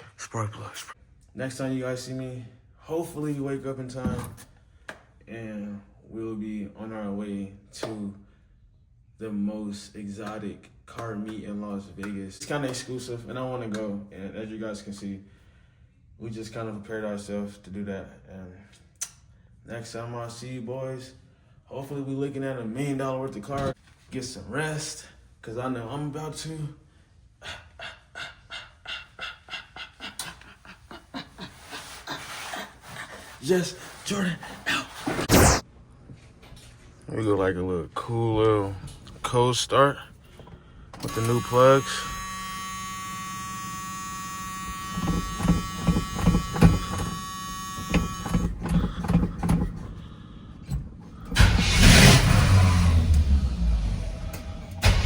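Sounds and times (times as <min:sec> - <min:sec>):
person panting: 0:27.4 - 0:35.0
short voiced sounds: 0:35.3 - 0:35.6
starter motor cranking: 0:41.0 - 0:50.0, 0:51.2 - 0:53.4
truck engine running: 0:51.4 - 0:55.0.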